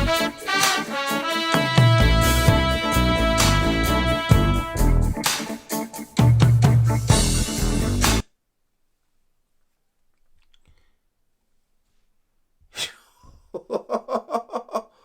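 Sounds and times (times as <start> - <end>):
man exhaling sharply: 12.8 - 13.5
rapid laughter: 13.6 - 15.0.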